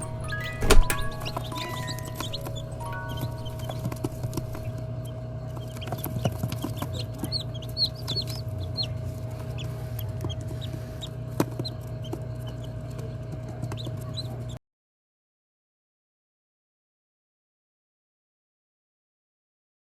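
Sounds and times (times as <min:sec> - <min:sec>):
high chick peeps: 0:05.5 - 0:14.6.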